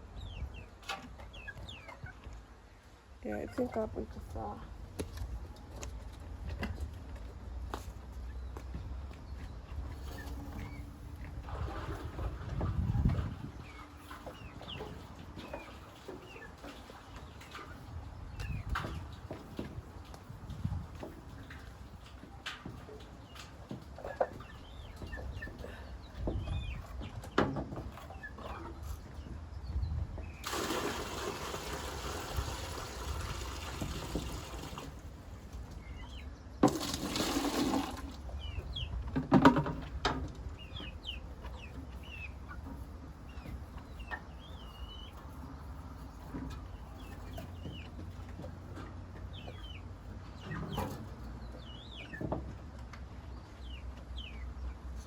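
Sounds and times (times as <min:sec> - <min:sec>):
chicks peeping: 0:00.0 - 0:06.8, 0:08.0 - 0:11.2, 0:12.0 - 0:30.4, 0:35.3 - 0:36.6, 0:38.1 - 0:55.0
chickens clucking: 0:00.0 - 0:30.5, 0:32.6 - 0:55.0
water pouring: 0:30.4 - 0:35.0, 0:36.6 - 0:38.2
buckets knocking: 0:36.6 - 0:38.1.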